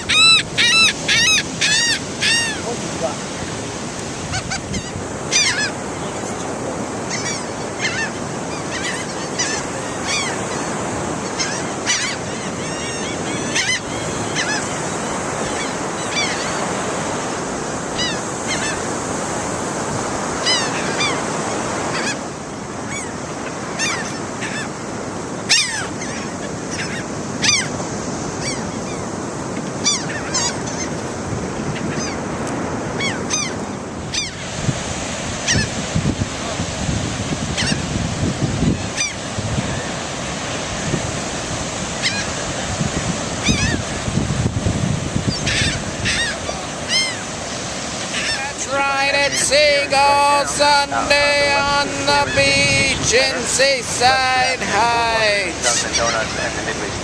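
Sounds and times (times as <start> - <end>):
gulls calling: 0.0 - 57.0
surf: 0.0 - 57.0.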